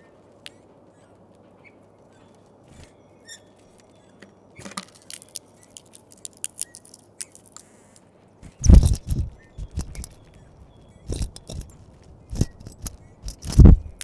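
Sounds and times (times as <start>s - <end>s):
birds pecking and cracking seeds: 4.6s - 14.0s.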